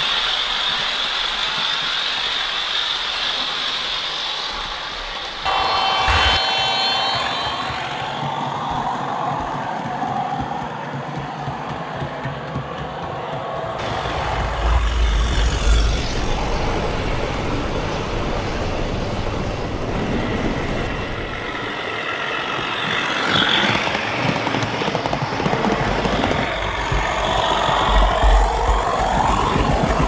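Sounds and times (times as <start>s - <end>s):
simulated diesel engine drone: 0.0s - 9.5s, 13.8s - 24.3s, 25.5s - 30.0s.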